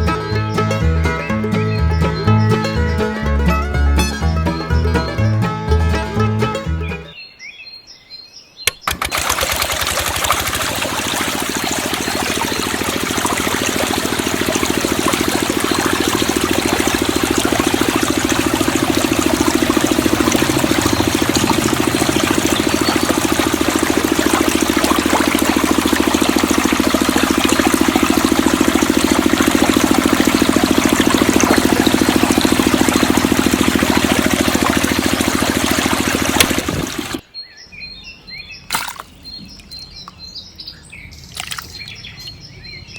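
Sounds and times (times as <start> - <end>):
water pump engine running: 8.9 - 37.2
water rushing: 8.9 - 37.2.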